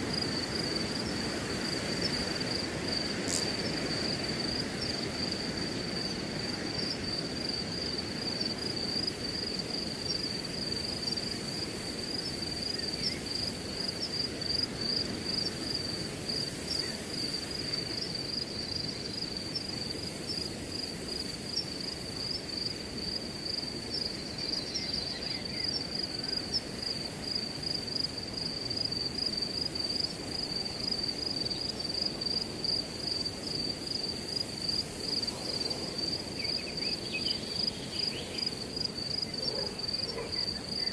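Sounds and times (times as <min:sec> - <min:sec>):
crickets chirping: 0:00.0 - 0:40.9
wind through grass: 0:00.0 - 0:40.9.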